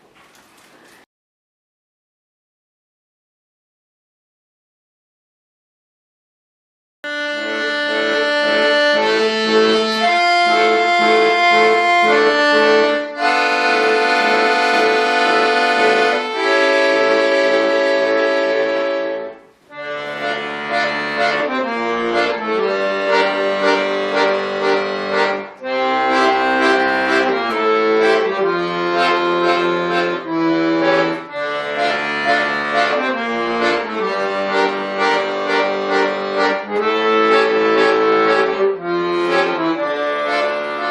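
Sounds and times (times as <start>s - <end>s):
button accordion playing chords: 7.0s - 40.9s.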